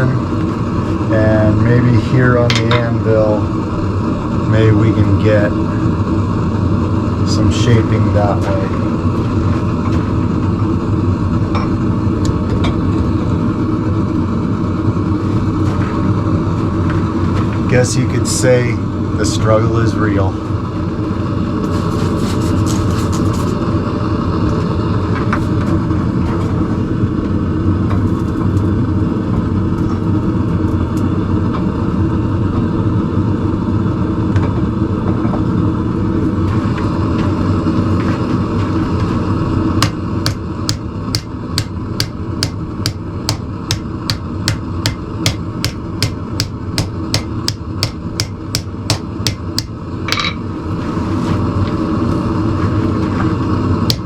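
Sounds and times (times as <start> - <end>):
continuous steady roar: 0.0 - 54.0
hammer striking steel on anvil: 39.8 - 50.4.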